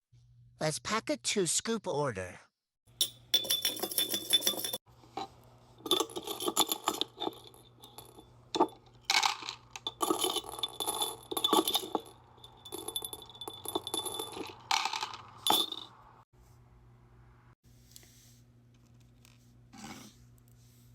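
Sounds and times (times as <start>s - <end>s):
small hard items clinking: 3.0s - 16.0s.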